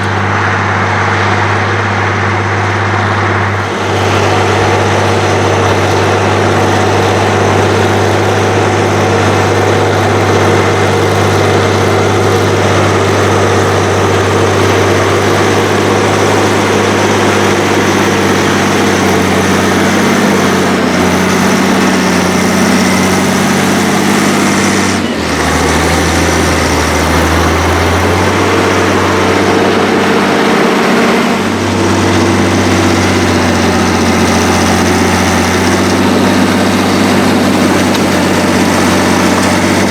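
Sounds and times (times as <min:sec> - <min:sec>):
tractor engine under load: 0:00.0 - 0:39.9.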